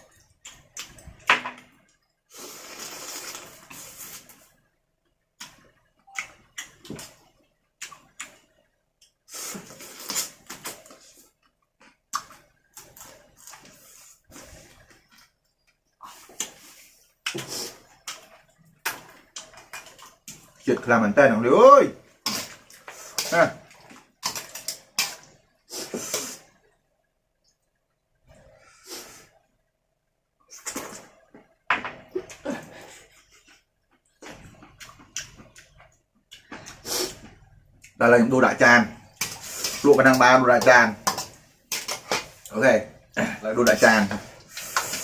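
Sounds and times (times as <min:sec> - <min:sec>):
person eating noisily: 0:02.3 - 0:04.4, 0:22.2 - 0:26.5
wet chewing and smacking: 0:33.4 - 0:38.0.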